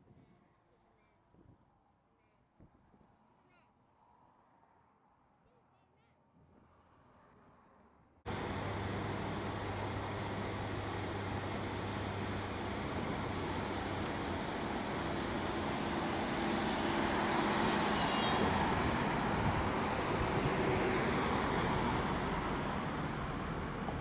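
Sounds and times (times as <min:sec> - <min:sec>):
steady low hum: 0:08.3 - 0:17.8
vehicle passing: 0:08.3 - 0:24.0.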